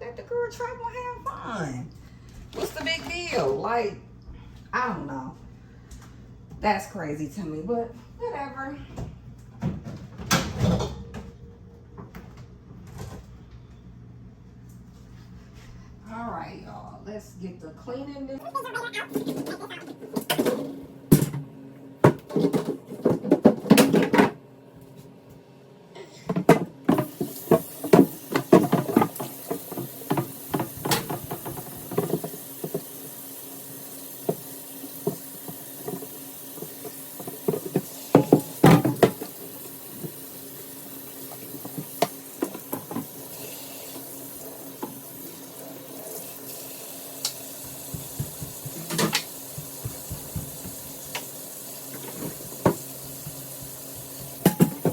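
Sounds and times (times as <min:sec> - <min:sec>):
dishes clattering in sink: 0:22.0 - 0:24.4, 0:26.1 - 0:33.0, 0:34.2 - 0:40.3, 0:47.2 - 0:54.9
tap running: 0:26.4 - 0:54.9
dishes clinking: 0:54.4 - 0:54.9.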